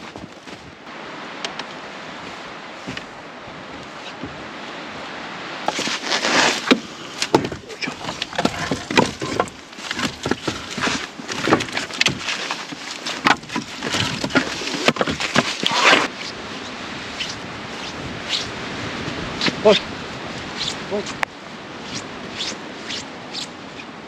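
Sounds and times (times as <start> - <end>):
wood knocking and snapping: 5.7 - 16.1.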